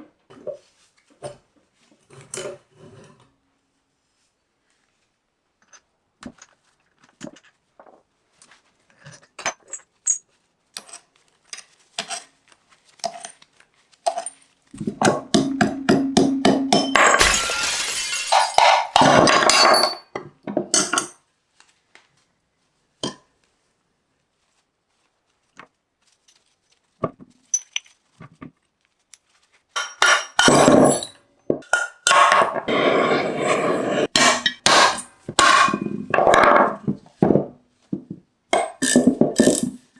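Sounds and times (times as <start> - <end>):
tools and metal parts clinking: 27.5 - 28.0.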